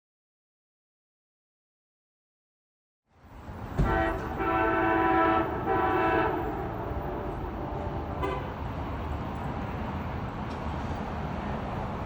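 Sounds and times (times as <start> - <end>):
low rumble of train: 3.1 - 12.0
locomotive horn blasts: 3.8 - 8.6.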